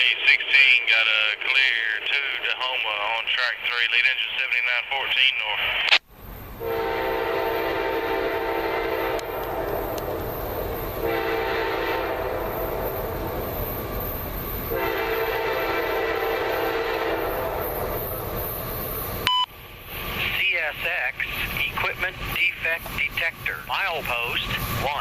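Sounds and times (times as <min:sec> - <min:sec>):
low rumble of passing train: 0:00.0 - 0:25.0
locomotive air horn blasts: 0:06.6 - 0:10.4, 0:11.0 - 0:13.2, 0:14.7 - 0:18.0.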